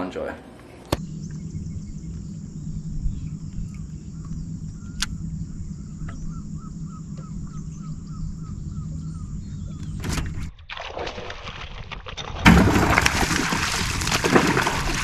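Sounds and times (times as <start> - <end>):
bird calling: 0.6 - 10.1
low hum: 0.7 - 10.6.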